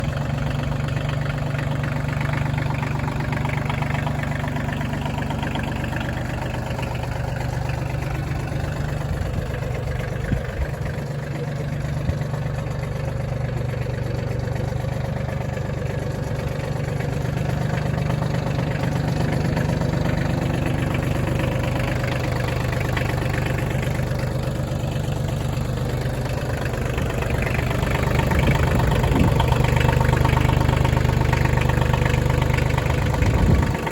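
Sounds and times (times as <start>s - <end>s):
tractor diesel engine idling: 0.0s - 33.9s.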